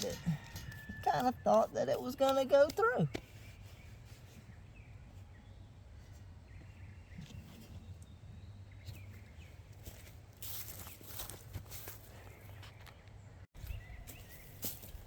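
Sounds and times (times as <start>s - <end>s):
rustling noise: 8.9s - 13.0s.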